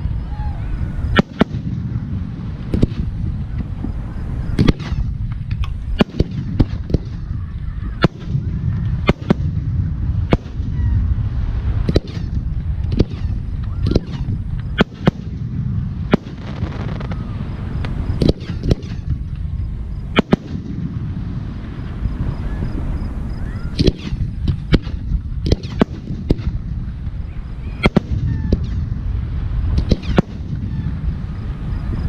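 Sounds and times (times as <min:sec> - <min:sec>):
low rumble: 0:00.0 - 0:32.0
firework shells banging: 0:16.1 - 0:21.0, 0:29.7 - 0:30.7.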